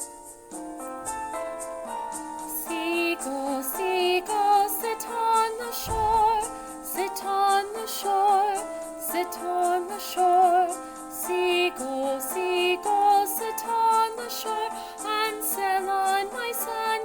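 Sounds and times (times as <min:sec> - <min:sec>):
instrumental accompaniment: 0:00.0 - 0:15.9
woman singing: 0:02.5 - 0:17.0
low thump: 0:05.8 - 0:06.7.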